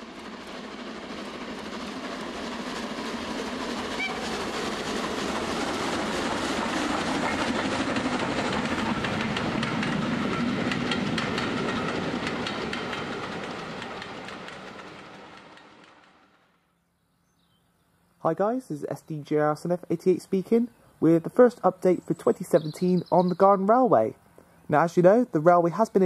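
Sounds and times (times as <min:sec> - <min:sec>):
train passing: 0:00.0 - 0:17.2, 0:17.8 - 0:26.0
wheels clicking over rail joints: 0:01.1 - 0:16.2.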